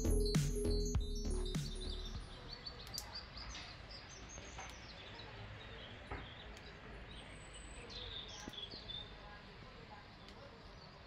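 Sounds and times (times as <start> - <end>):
faint birds chirping: 0.0 - 11.0
low background noise: 2.1 - 11.0
soft clicks: 2.7 - 3.7, 8.3 - 8.9, 10.2 - 10.6.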